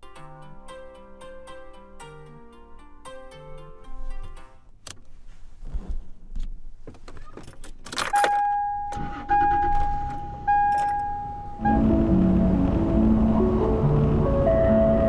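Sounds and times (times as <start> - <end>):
clicks: 6.4 - 11.4
keys jangling: 7.0 - 8.6, 10.0 - 11.2
vehicle warning chime dinging: 7.9 - 12.6.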